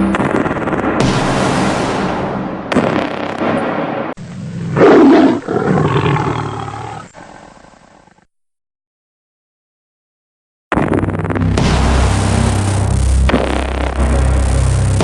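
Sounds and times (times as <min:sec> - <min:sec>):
tiger roaring: 0:04.4 - 0:08.2
loud noisy sound: 0:10.7 - 0:15.0.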